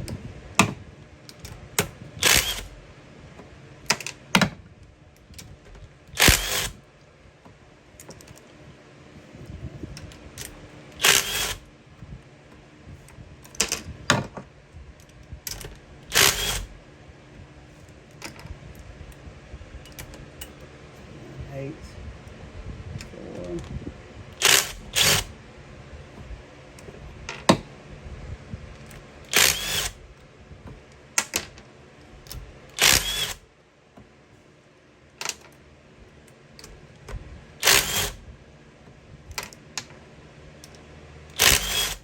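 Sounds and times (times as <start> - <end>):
louder longer tool noises: 2.2 - 2.7, 6.1 - 6.8, 10.4 - 11.6, 16.1 - 16.7, 24.4 - 25.3, 29.3 - 30.0, 32.8 - 33.4, 37.6 - 38.2, 41.3 - 42.0.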